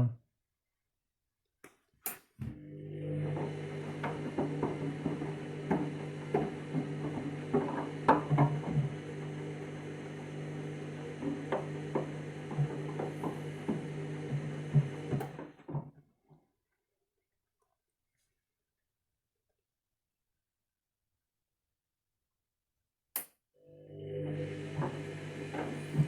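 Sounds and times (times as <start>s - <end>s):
washing machine motor hum: 2.4s - 15.9s, 23.6s - 26.0s.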